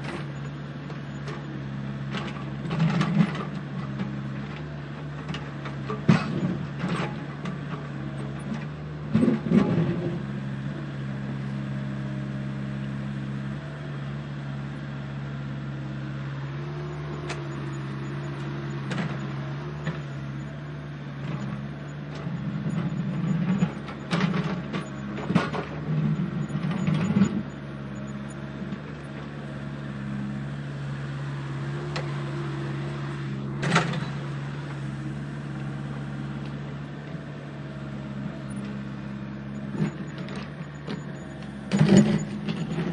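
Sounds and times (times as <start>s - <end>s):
gravel crunching and clacking: 2.1s - 10.2s, 21.2s - 29.4s, 39.6s - 42.9s.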